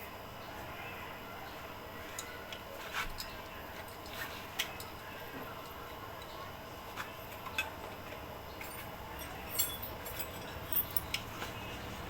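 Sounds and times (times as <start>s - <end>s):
metallic clinks of hand tools: 8.6s - 11.3s.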